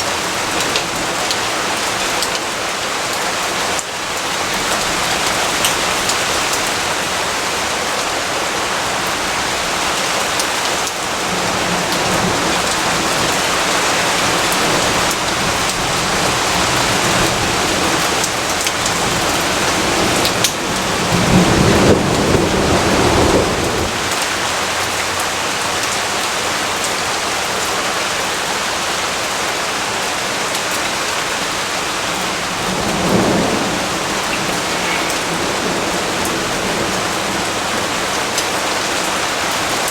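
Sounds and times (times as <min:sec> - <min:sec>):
steady rain: 0:00.0 - 0:39.9
low thunder rumble: 0:11.2 - 0:24.2, 0:32.1 - 0:38.2.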